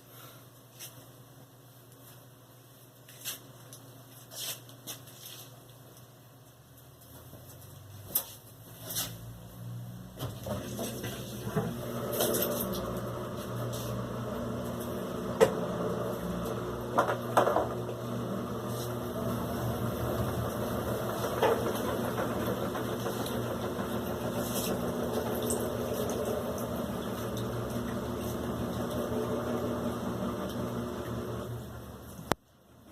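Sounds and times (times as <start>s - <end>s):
washing machine motor hum: 9.4s - 32.4s.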